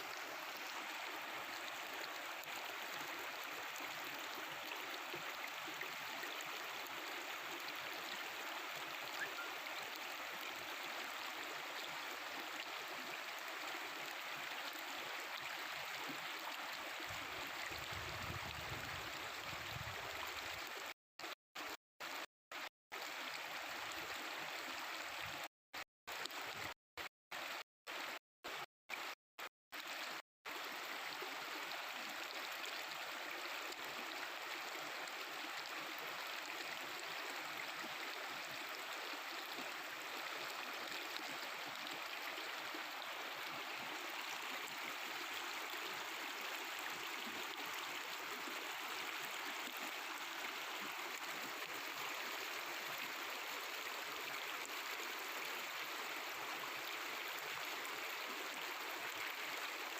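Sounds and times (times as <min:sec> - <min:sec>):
mountain river flowing: 0:00.0 - 0:25.5, 0:29.8 - 0:59.9.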